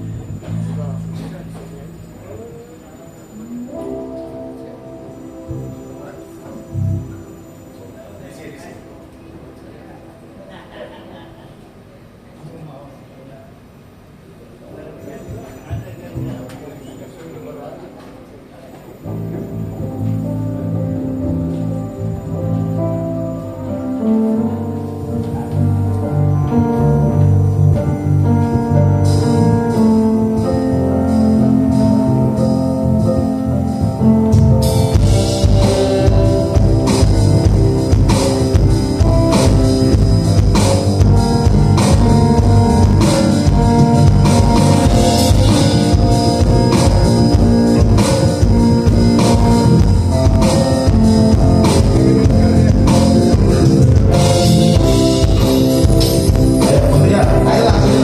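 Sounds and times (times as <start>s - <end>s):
bass: 0.0s - 9.0s, 16.2s - 16.5s, 19.0s - 58.0s
guitar chords: 0.0s - 10.6s, 14.7s - 58.0s
keyboard chords: 0.0s - 12.4s, 13.9s - 58.0s
drums: 25.3s - 58.0s.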